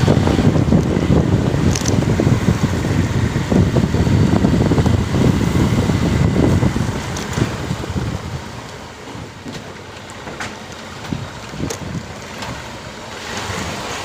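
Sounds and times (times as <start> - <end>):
wind noise on microphone: 0.0 - 9.7, 10.9 - 14.0
low rumble: 0.0 - 9.8.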